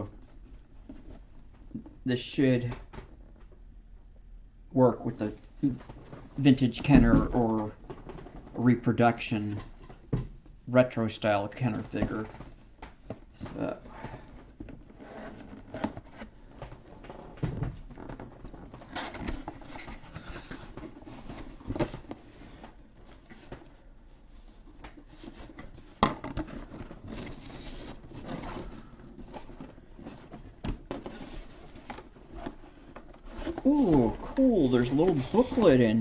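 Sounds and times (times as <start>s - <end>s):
cardboard box rustling and scraping: 24.5s - 36.0s.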